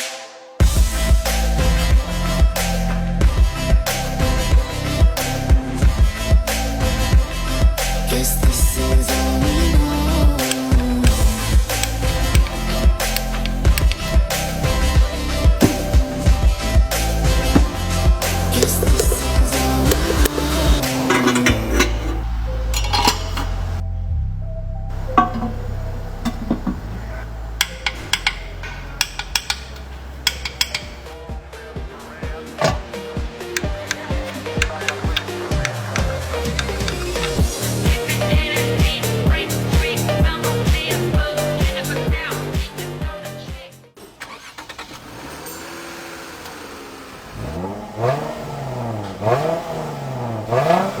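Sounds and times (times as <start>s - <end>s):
car engine idling and revving: 0.6s - 41.8s, 44.0s - 51.0s
metal tools clinking: 11.7s - 14.2s, 15.6s - 16.0s, 17.6s - 23.8s, 25.2s - 31.1s, 32.5s - 37.6s.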